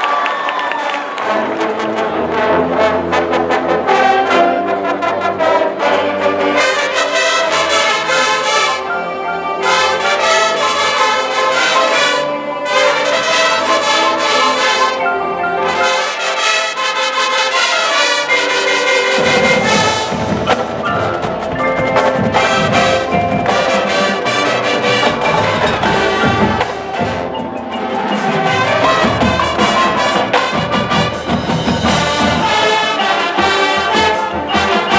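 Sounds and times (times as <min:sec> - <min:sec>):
brass band playing: 0:00.1 - 0:34.9
marimba and xylophone: 0:06.1 - 0:34.9
heavy percussion: 0:15.6 - 0:34.9.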